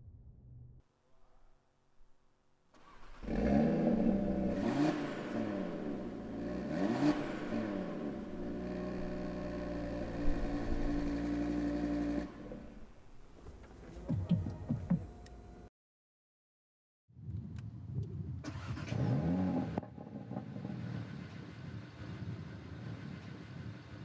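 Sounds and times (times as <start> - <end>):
car engine starting and revving: 2.8 - 13.1, 18.4 - 24.0
car engine idling: 2.8 - 13.4.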